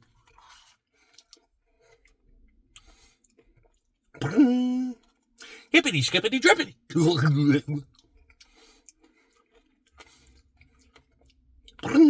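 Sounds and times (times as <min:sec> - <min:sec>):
man eating mouth sounds: 0:05.4 - 0:07.8, 0:11.8 - 0:12.0
man holding a vocal note: 0:05.4 - 0:07.8.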